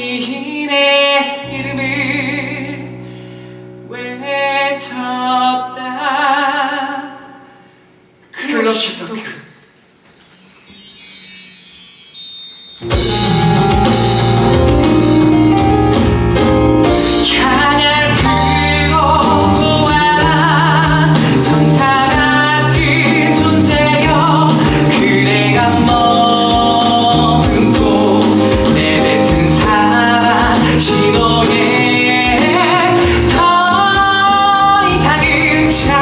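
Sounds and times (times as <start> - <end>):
band accompaniment: 10.1 - 36.0
voices singing with vibrato: 17.2 - 36.0.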